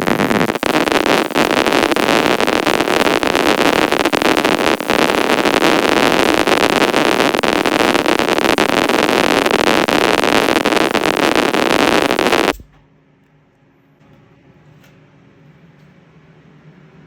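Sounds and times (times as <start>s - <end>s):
welding arc crackling: 0.0s - 12.7s.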